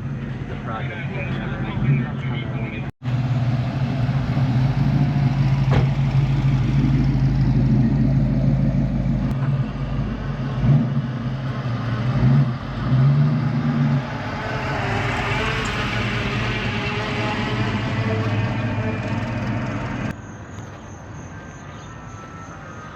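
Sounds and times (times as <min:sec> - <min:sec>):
car engine rumbling: 0:00.0 - 0:20.3
rushing noise: 0:12.6 - 0:20.2.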